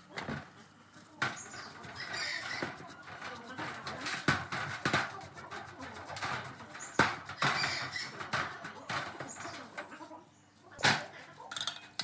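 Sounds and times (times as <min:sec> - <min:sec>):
knocks from hand work: 0:01.2 - 0:09.9
scraping of parts: 0:01.2 - 0:10.1, 0:10.8 - 0:12.0.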